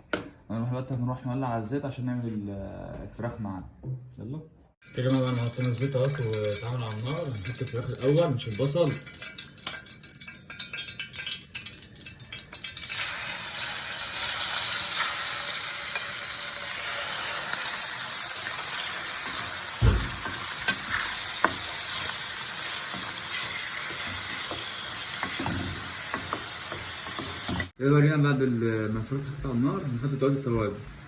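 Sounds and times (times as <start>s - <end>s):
chicken frying in hot oil: 4.9s - 31.0s
pan knock: 19.8s - 20.8s.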